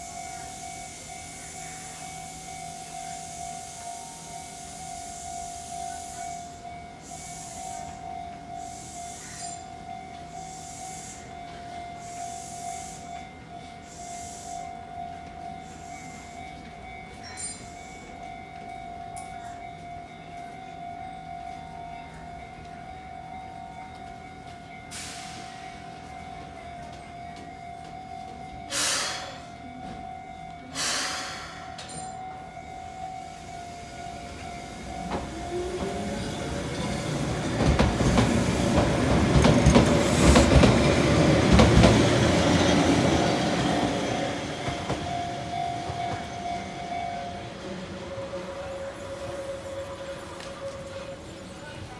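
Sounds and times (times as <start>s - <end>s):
level crossing alarm ringing: 0.0s - 51.9s
train wheels rumbling and clattering: 33.4s - 51.9s.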